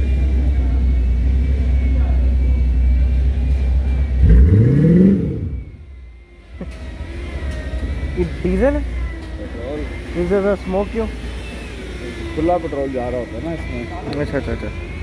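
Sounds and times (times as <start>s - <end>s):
car engine rumbling and revving: 0.0s - 8.9s.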